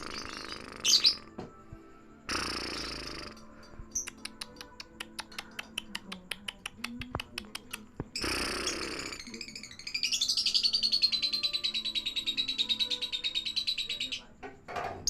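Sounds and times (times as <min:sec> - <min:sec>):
bird screech: 0:00.0 - 0:01.4, 0:08.2 - 0:13.8
high bird trill: 0:00.0 - 0:01.4, 0:02.3 - 0:05.8, 0:08.2 - 0:14.4
lovebird chattering: 0:00.0 - 0:01.4, 0:02.3 - 0:14.3.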